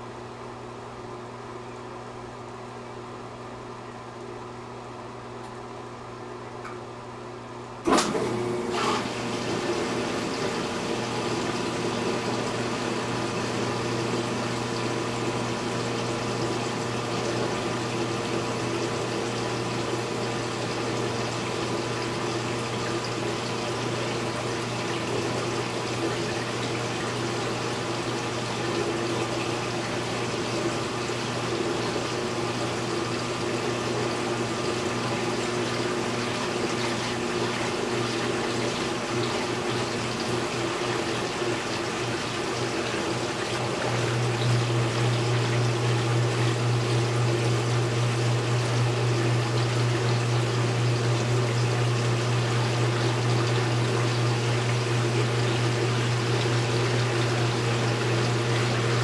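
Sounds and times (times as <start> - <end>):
washing machine humming: 0.0 - 59.0
water rushing into tub: 7.8 - 59.0.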